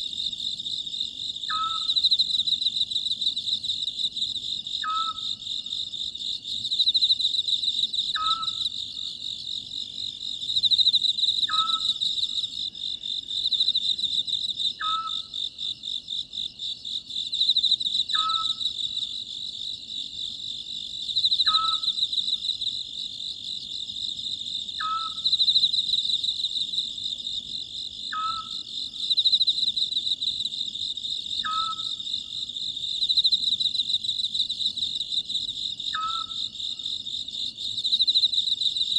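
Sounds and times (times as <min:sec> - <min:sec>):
night insects chorus: 0:00.0 - 0:38.9
owl calling: 0:01.5 - 0:01.9, 0:04.8 - 0:05.3, 0:08.2 - 0:08.6, 0:11.5 - 0:12.0, 0:14.8 - 0:15.3, 0:18.1 - 0:18.6, 0:21.5 - 0:21.9, 0:24.8 - 0:25.2, 0:28.1 - 0:28.6, 0:31.4 - 0:31.9, 0:35.9 - 0:36.4.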